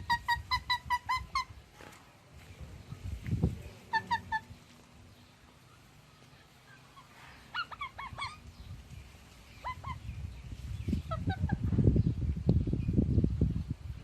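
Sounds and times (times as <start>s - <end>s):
parrot squeaky calls: 0.0s - 1.5s, 3.9s - 4.5s, 6.7s - 8.5s, 9.5s - 10.1s.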